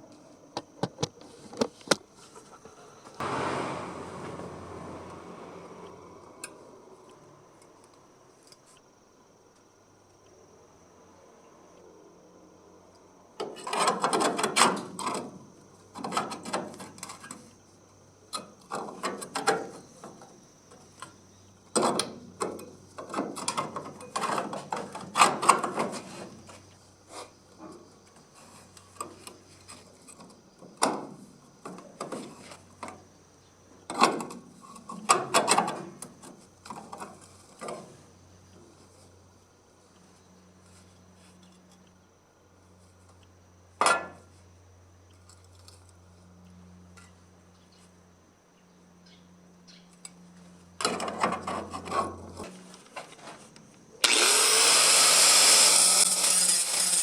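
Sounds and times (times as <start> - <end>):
hand tools clicking and scraping metal: 54.0 - 57.0.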